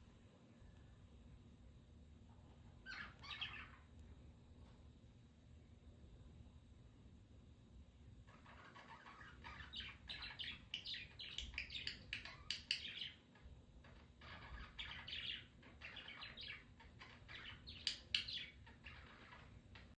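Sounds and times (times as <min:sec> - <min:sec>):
budgerigars chirping: 0:02.9 - 0:03.8, 0:08.3 - 0:19.9.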